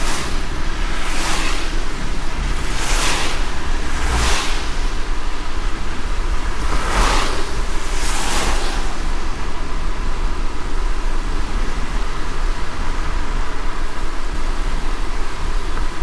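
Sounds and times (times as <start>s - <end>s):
short swish: 0.0s - 9.9s
car road and engine rumble: 0.0s - 16.0s
rain noise: 0.0s - 16.0s.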